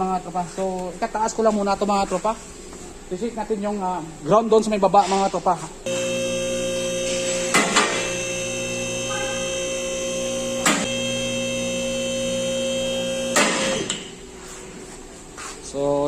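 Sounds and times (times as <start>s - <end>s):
hydraulic pump motor humming: 5.9s - 14.3s.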